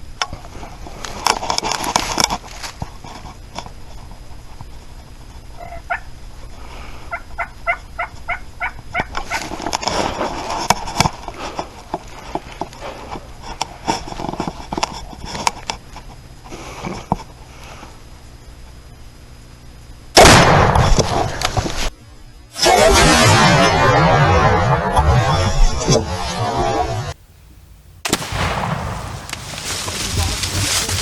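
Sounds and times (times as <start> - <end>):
turkey gobbling: 5.6 - 6.1, 7.1 - 9.4
turkey yelping: 5.6 - 6.1, 7.1 - 9.4.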